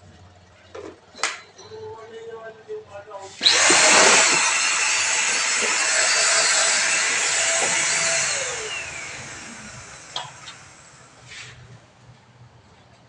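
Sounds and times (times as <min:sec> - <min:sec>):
motor winding down whine: 0:03.4 - 0:11.3
handheld vacuum cleaner running: 0:03.4 - 0:11.6.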